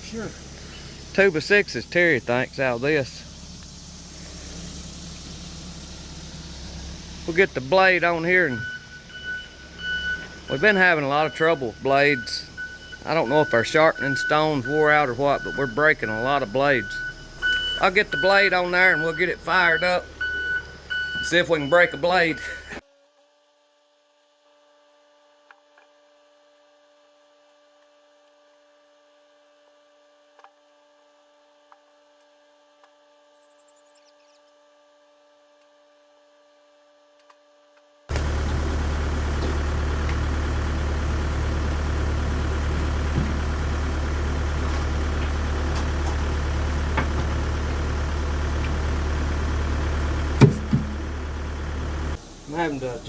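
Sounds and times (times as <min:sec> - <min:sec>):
sawmill engine humming: 0:00.0 - 0:22.8, 0:38.1 - 0:53.0
sharp knocks: 0:50.4 - 0:51.0.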